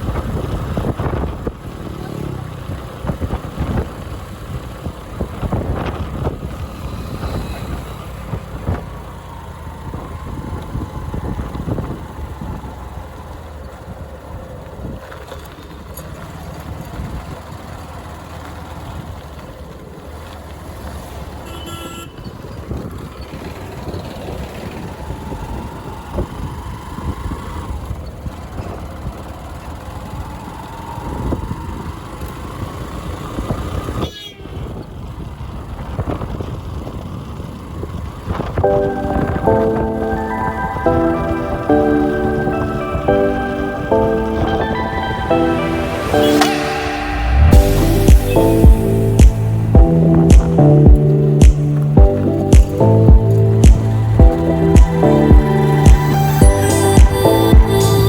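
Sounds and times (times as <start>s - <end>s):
wind noise: 0.0s - 2.0s, 2.6s - 12.9s, 31.0s - 57.8s
motorcycle engine rumble: 0.0s - 58.0s
horn toot: 42.4s - 50.7s.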